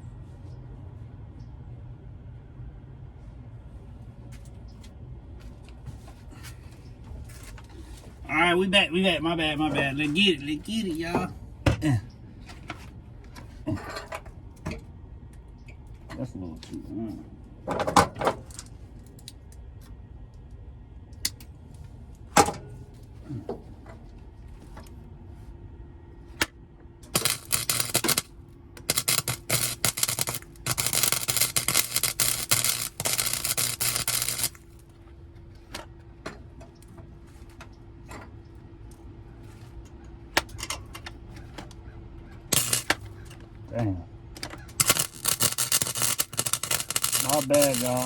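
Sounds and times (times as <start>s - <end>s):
steady low hum: 0.0s - 48.0s
welder arc crackling: 27.1s - 34.9s, 42.5s - 43.0s, 44.6s - 48.0s
sharp clicks and knocks: 42.5s - 43.4s, 44.4s - 48.0s.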